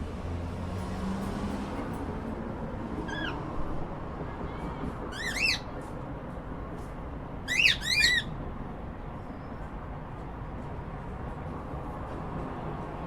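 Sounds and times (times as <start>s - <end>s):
cockatiel chirping: 5.2s - 5.7s, 7.5s - 8.3s.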